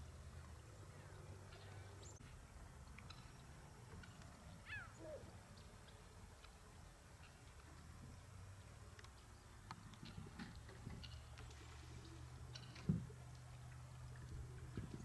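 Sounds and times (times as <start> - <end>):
faint bird calls: 4.5 - 5.7.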